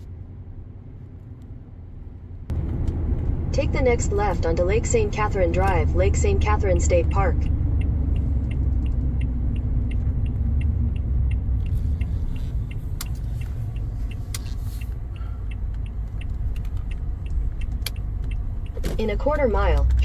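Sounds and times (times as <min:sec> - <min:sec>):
road and engine rumble: 0:00.0 - 0:20.0
turn signal ticking: 0:02.5 - 0:20.0.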